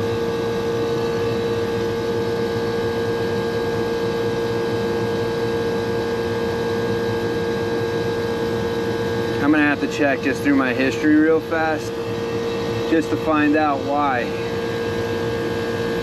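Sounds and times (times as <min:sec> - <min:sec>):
air conditioner humming: 0:09.0 - 0:16.0.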